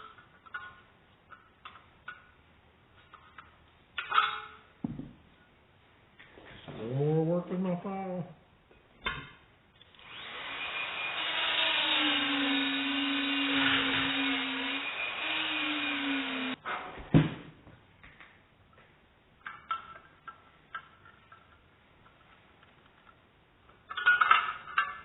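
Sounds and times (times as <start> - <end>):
power tool motor whining: 10.0 - 16.6.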